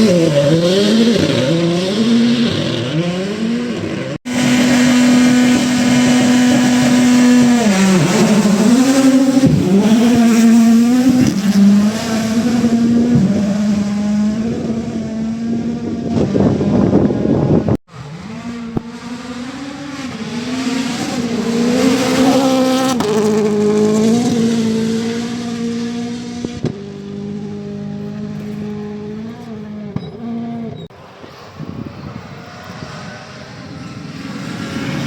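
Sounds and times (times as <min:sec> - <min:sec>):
rally car engines revving: 0:00.0 - 0:35.0
noisy rush: 0:30.9 - 0:35.0.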